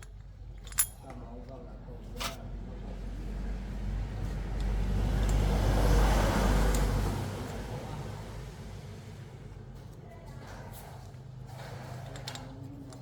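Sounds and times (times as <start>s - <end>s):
vehicle passing by: 2.7s - 9.6s.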